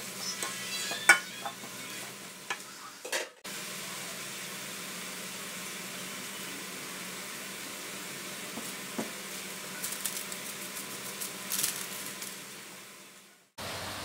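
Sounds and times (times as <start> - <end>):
stir-fry sizzling in a wok: 0.0 - 14.0.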